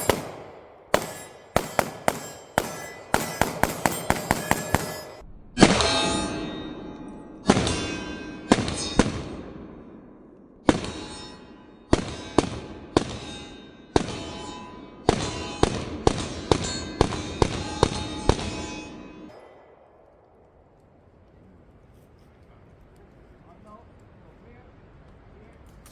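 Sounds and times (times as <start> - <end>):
pistol shots: 0.0 - 5.8
metallic ringing: 0.0 - 19.8.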